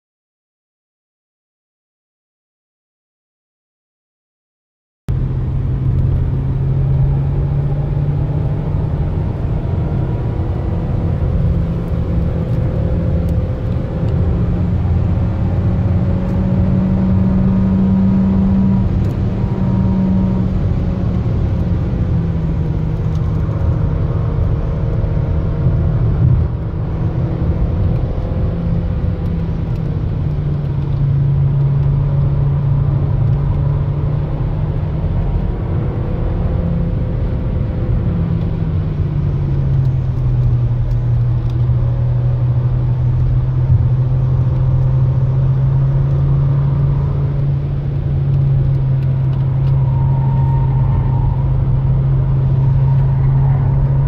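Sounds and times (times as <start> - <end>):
car engine accelerating: 5.1 - 54.0
tyre and road noise drone: 5.1 - 54.0.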